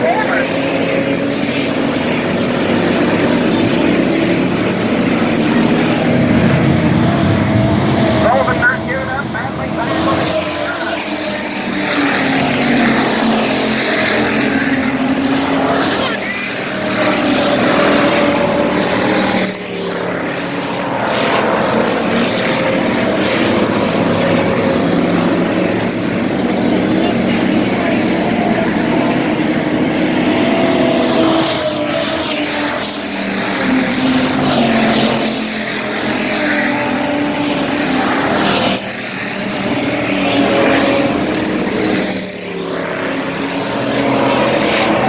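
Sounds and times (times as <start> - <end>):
race car engines: 0.0 - 45.0.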